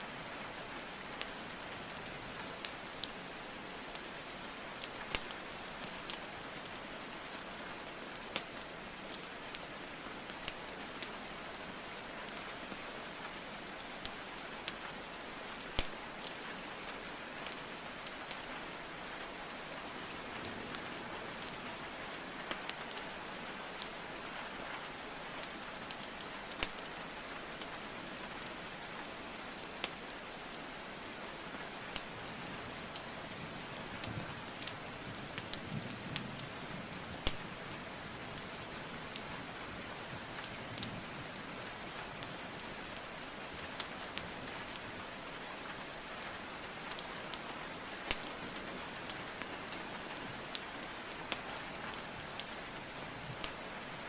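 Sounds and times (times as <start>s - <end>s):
rain hiss: 0.0s - 54.0s
burning wood crackling: 3.9s - 6.8s, 25.4s - 28.5s, 32.9s - 37.6s, 46.0s - 53.8s.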